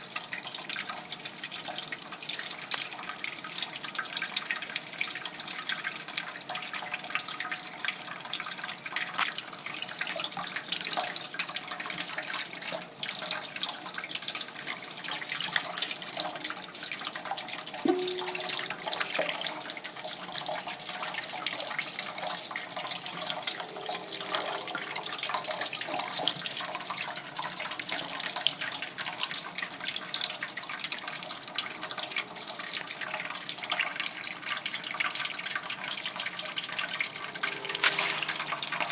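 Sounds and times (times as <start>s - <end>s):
tap water running and splashing: 0.0s - 37.1s.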